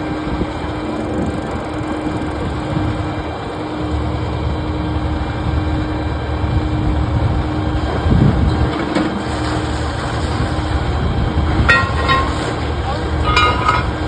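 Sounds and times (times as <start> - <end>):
faint steady hum: 0.0 - 6.6
heavy engine rumble: 0.0 - 14.0.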